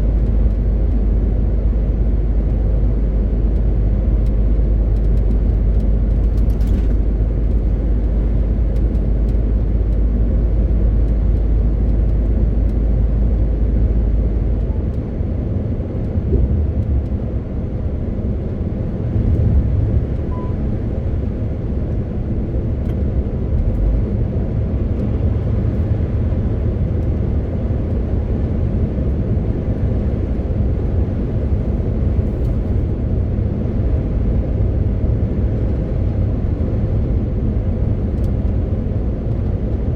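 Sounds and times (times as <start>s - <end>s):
road noise: 0.0s - 39.9s
truck diesel engine droning: 18.2s - 32.9s.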